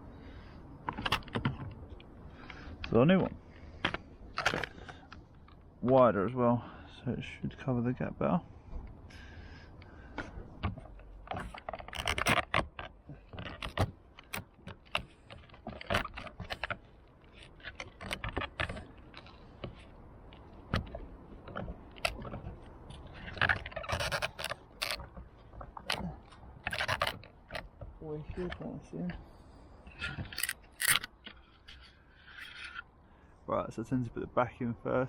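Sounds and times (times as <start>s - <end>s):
plastic guttering clicking and scraping: 0.4s - 6.1s, 8.7s - 29.3s.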